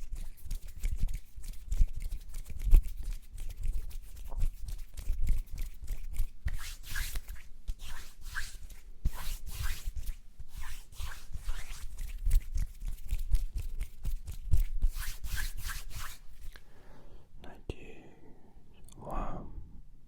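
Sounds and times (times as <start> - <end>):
hand rubbing swishes: 0.5 - 16.6.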